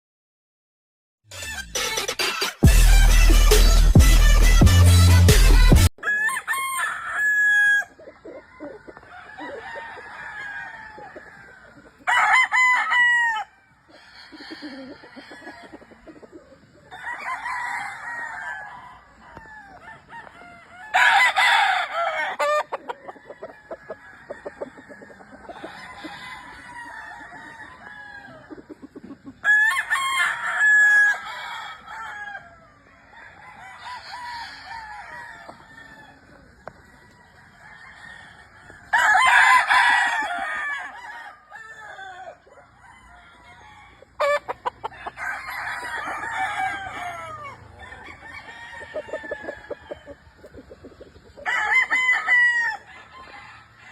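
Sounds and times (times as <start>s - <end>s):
roosters crowing: 1.3s - 53.9s
hens clucking: 7.8s - 12.1s, 13.7s - 20.9s, 21.8s - 31.0s, 31.6s - 53.9s.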